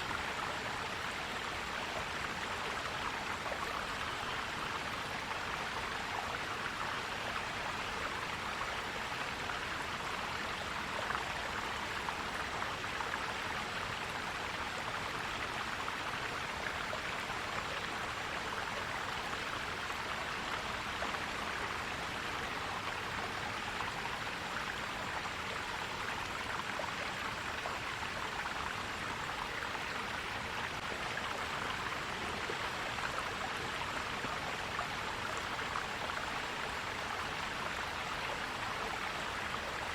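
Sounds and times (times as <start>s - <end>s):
stream gurgling over rocks: 0.0s - 39.9s.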